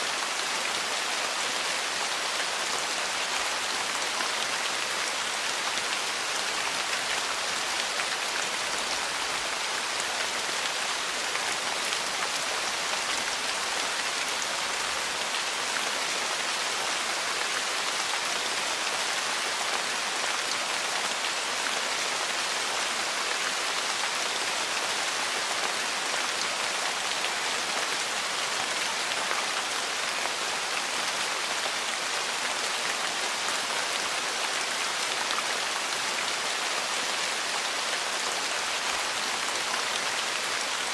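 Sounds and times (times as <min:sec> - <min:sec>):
heavy rain falling: 0:00.1 - 0:40.9.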